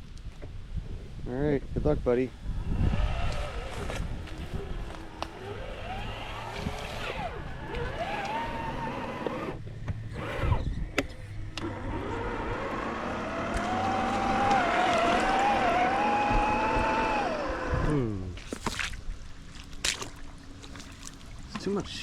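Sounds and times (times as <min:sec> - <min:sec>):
electric motor of toy car whining: 0:02.6 - 0:10.8, 0:11.6 - 0:18.2.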